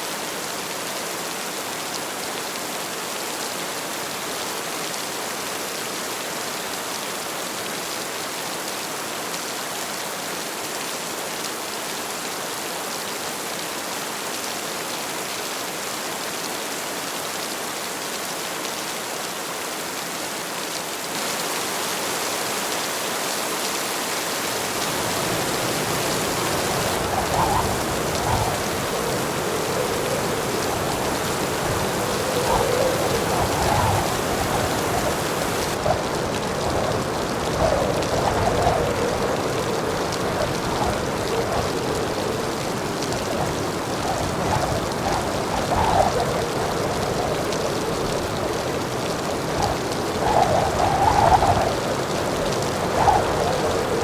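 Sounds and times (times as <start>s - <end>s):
heavy rain falling: 20.7s - 54.0s.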